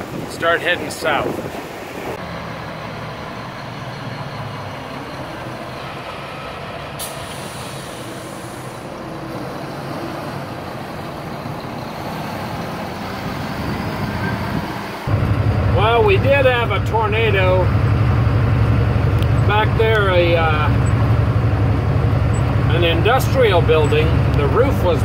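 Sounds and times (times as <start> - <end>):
diesel truck engine running: 2.2 - 25.0
air brakes hissing: 6.9 - 9.0.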